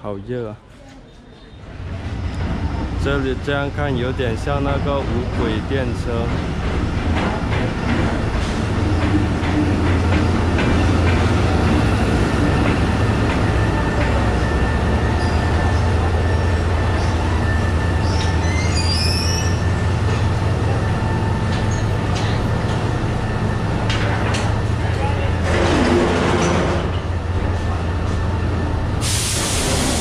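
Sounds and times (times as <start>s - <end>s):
wheels squealing on rail: 1.3s - 3.0s, 7.6s - 9.5s, 13.5s - 20.2s, 21.5s - 22.8s
locomotive engine drone: 1.8s - 30.0s.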